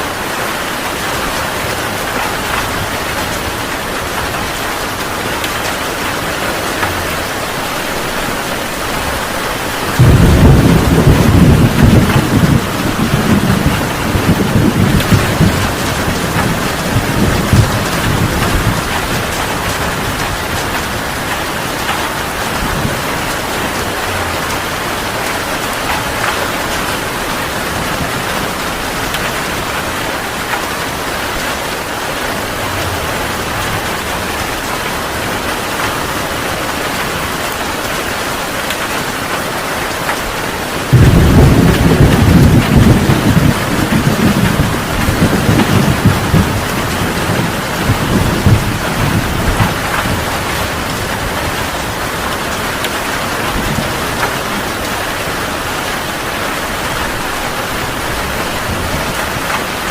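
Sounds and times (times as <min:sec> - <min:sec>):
heavy rain falling: 0:00.0 - 0:59.9
low thunder rumble: 0:01.3 - 0:35.8, 0:40.8 - 0:59.9
loud thunderclap: 0:08.8 - 0:31.6, 0:40.8 - 0:52.9.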